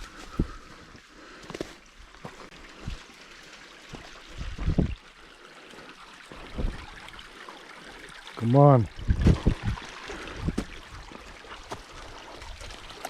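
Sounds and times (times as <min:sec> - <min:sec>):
stream water trickling: 0:00.0 - 0:13.0.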